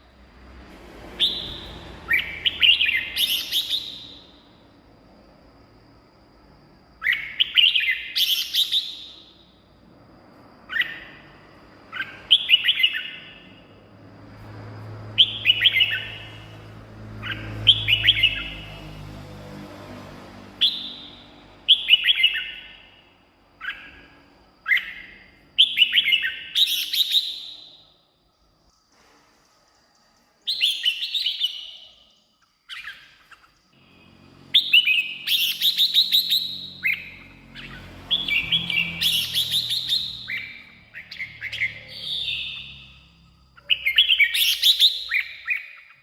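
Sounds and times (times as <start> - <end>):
bird warbling song: 10.7 - 13.5, 34.5 - 46.0.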